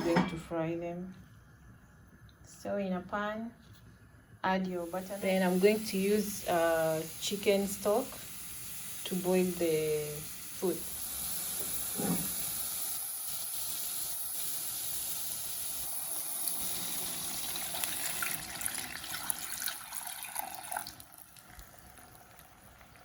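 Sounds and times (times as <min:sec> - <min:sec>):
pan crackling: 0:04.9 - 0:23.0
stock pouring into hot pan: 0:05.0 - 0:23.0.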